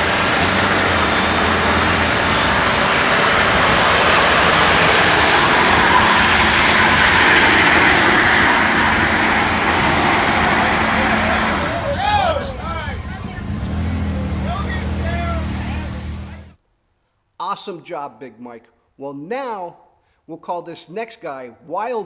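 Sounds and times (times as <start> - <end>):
engine roaring at high revs: 0.0 - 16.6
tires spinning: 0.0 - 16.6.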